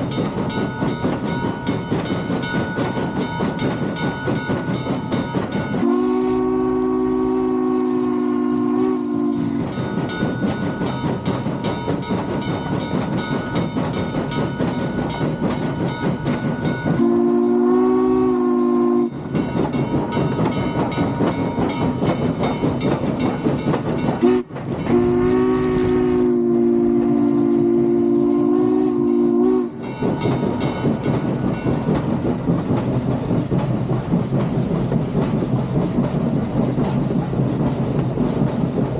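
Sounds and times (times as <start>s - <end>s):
steam locomotive chime whistle: 0.0s - 32.4s
train running: 0.0s - 38.9s.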